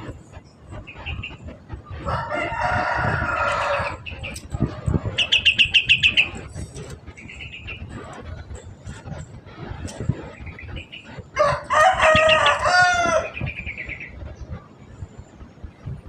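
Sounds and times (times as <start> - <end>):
rooster crowing: 2.0 - 4.0, 11.4 - 13.4
bird sharp high chirps: 5.2 - 6.4.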